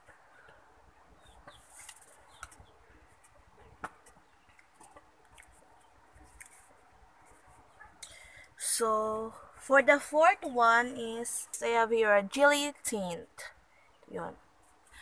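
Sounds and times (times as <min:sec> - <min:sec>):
faint bird chirps: 0:00.2 - 0:04.6.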